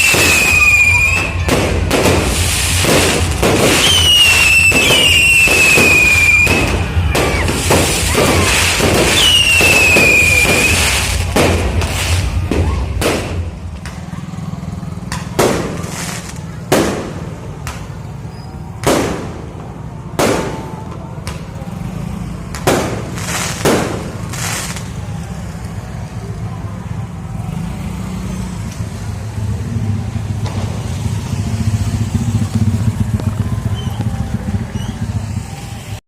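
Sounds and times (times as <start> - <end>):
firework hiss: 0.0 - 13.6, 22.5 - 25.1
fireworks bangs: 0.0 - 21.8, 22.4 - 25.7, 30.2 - 36.0.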